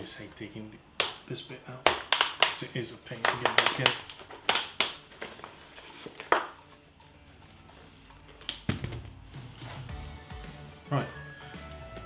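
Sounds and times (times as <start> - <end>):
handling noise: 1.9 - 6.8.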